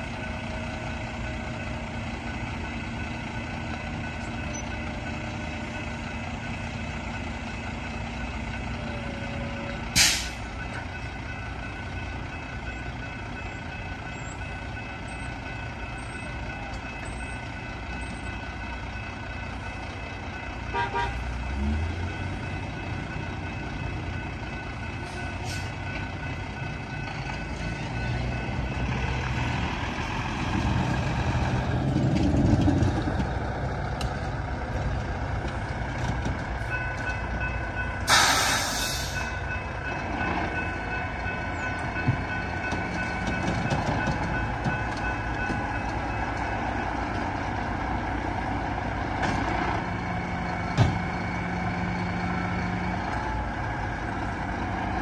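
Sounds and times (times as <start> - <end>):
freight train rumble: 0.0 - 55.0
air hiss burst: 38.1 - 39.2.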